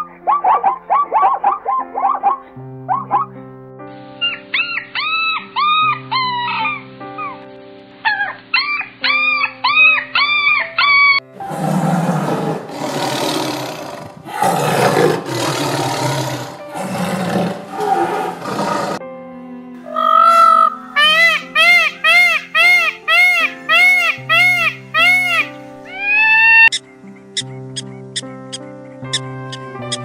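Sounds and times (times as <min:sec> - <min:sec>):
background music: 0:00.0 - 0:30.0
high arching animal cries: 0:04.2 - 0:07.4, 0:08.0 - 0:19.0, 0:19.8 - 0:26.8
tiger roars and growls: 0:11.4 - 0:19.0.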